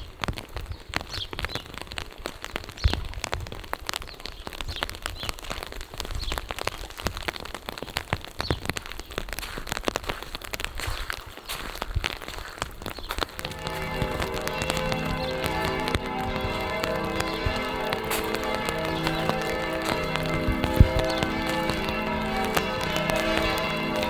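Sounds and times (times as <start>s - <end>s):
raindrops ticking close by: 0.0s - 24.0s
steady rain falling: 0.0s - 24.0s.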